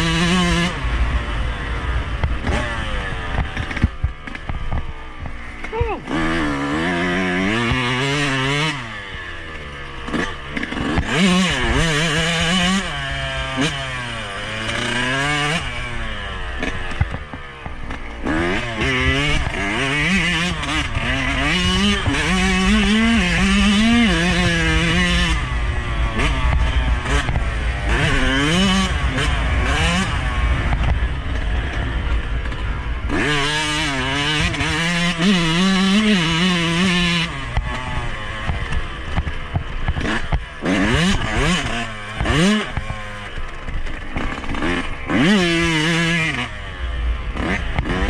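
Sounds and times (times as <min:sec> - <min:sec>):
motorcycle engine revving hard: 0:00.0 - 0:48.0.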